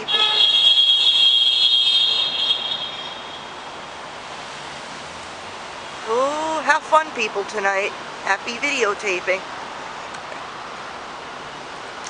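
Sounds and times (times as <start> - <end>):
vehicle horn long blast: 0.0 - 3.5
street noise hiss: 0.0 - 12.0.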